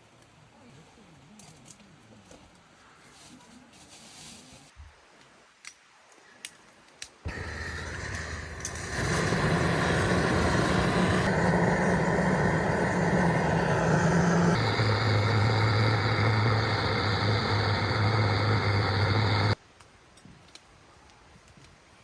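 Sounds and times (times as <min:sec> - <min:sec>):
motor humming: 0:07.3 - 0:19.6.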